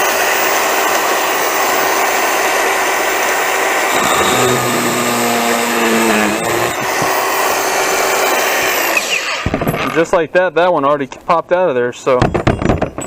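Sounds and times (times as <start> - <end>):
power drill running: 1.0 - 9.5.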